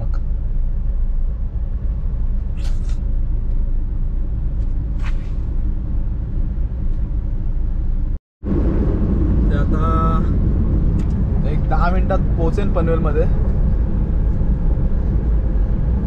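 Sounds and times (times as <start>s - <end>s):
brief hissing: 2.6s - 3.0s, 5.0s - 5.4s.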